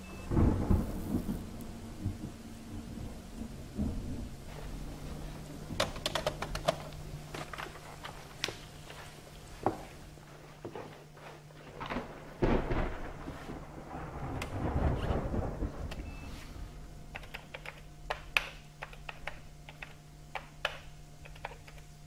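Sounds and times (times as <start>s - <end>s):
low steady hum: 0.0s - 22.0s
sharp clicks and knocks: 5.7s - 8.6s, 17.1s - 21.9s
heavy thump and rumble: 11.8s - 15.9s.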